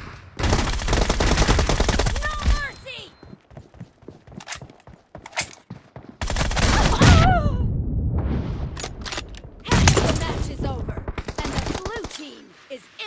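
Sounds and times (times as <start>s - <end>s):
video game gunfire: 0.4s - 2.7s, 6.2s - 7.4s, 9.6s - 12.3s.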